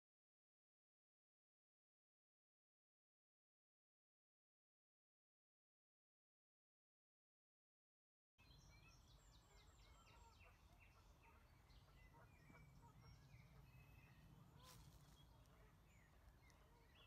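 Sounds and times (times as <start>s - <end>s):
small birds chirping: 8.4s - 17.0s
low outdoor rumble: 9.0s - 17.0s.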